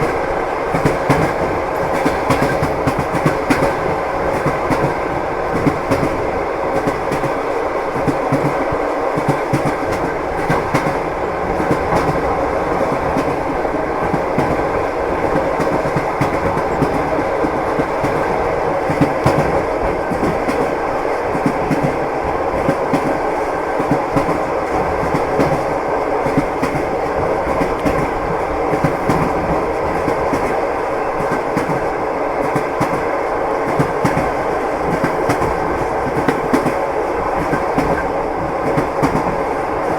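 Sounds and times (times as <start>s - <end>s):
train wheels clattering over rail joints: 0.0s - 30.6s.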